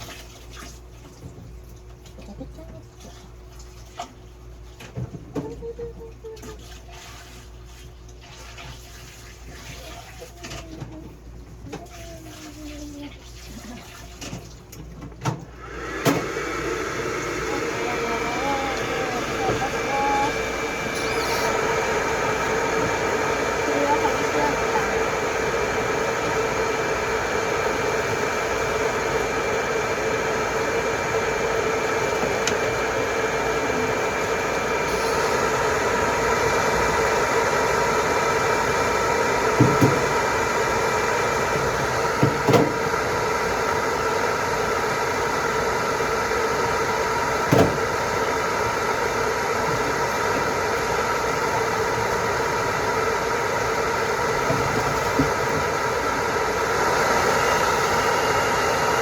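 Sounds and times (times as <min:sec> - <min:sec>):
hair dryer blowing: 0:15.5 - 0:59.0.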